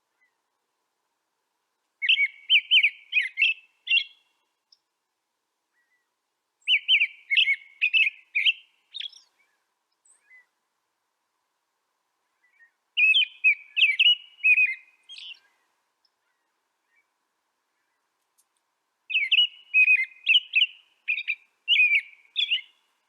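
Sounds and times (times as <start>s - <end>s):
songbird whistling song: 2.0s - 4.8s, 5.7s - 10.6s, 12.4s - 17.1s, 19.1s - 23.0s.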